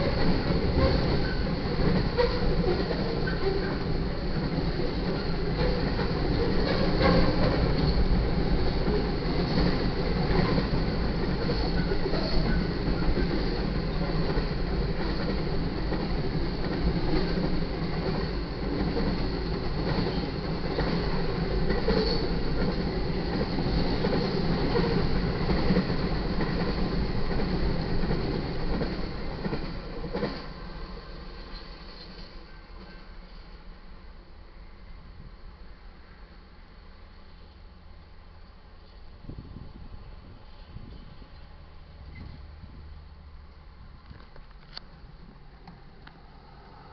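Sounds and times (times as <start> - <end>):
clicking over rail joints: 0.0 - 33.5, 43.5 - 46.8
train wheels rumbling on rails: 0.0 - 34.0, 37.3 - 46.9.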